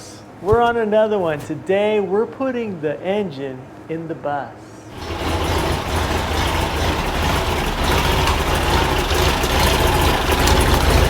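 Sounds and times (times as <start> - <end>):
engine rumbling: 4.9 - 11.0.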